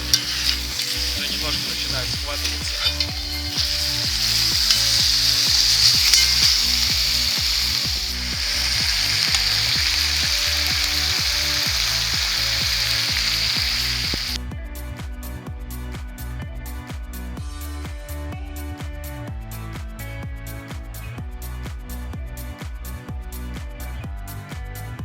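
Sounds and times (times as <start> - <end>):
chicken sizzling in butter: 0.0 - 14.4
background music with steady beat: 0.0 - 25.0.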